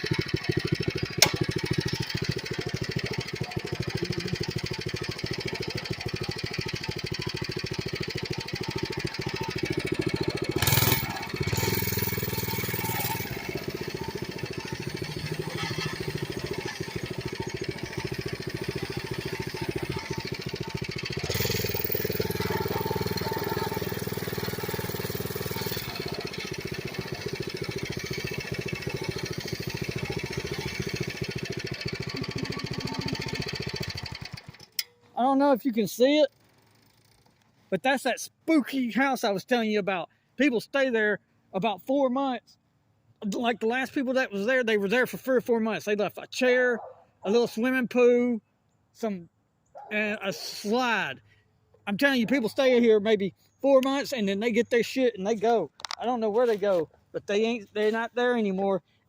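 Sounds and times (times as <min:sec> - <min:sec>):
mini bike engine running: 0:00.0 - 0:34.9.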